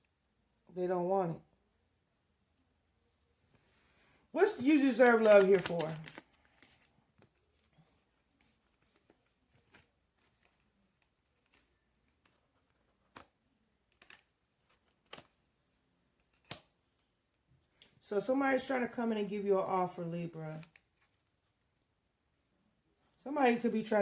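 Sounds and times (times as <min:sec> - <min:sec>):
cards clicking and tapping: 0:04.5 - 0:07.4, 0:11.4 - 0:15.4.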